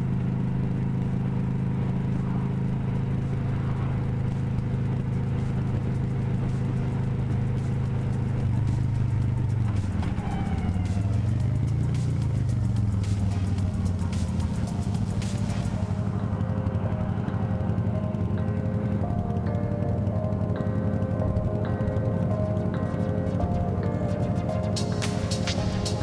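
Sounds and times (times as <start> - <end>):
vehicle engine running: 0.0 - 16.7
music with a regular beat: 1.0 - 16.2, 22.4 - 26.0.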